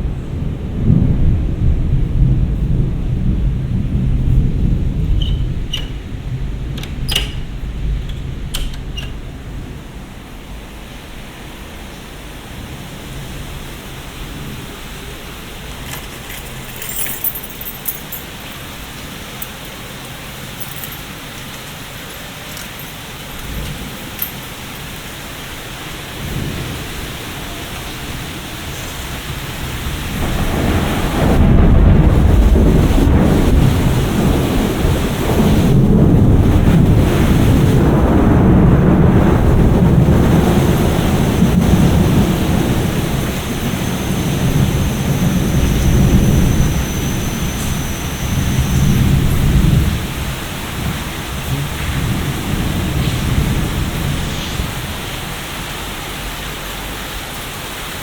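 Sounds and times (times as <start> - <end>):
thunder rumbling: 0.0 - 10.7, 23.1 - 55.1
steady rain: 0.0 - 58.0.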